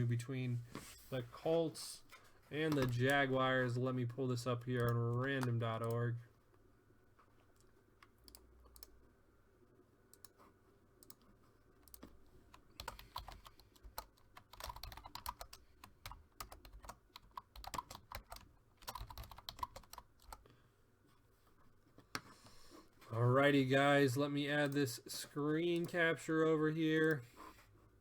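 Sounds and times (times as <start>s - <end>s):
computer keyboard typing: 2.7s - 3.3s, 4.0s - 6.0s, 11.8s - 20.4s.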